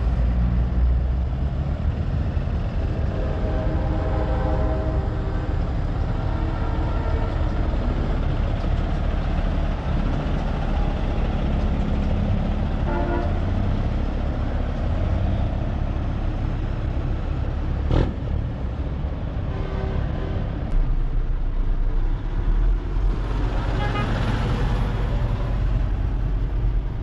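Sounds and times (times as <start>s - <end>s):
truck diesel engine running: 0.0s - 19.4s
truck horn toot: 3.0s - 5.5s, 6.2s - 7.6s, 12.8s - 13.6s, 23.7s - 24.3s.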